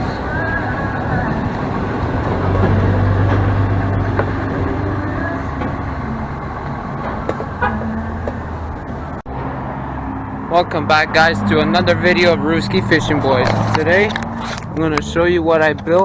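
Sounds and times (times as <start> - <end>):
two-stroke engine humming: 0.0 - 10.5.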